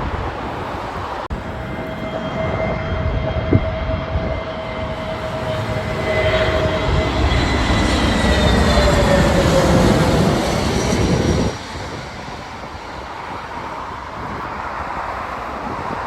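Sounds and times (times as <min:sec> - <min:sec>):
jet engine rumble: 0:00.0 - 0:16.0
jet engine whine: 0:00.0 - 0:16.0.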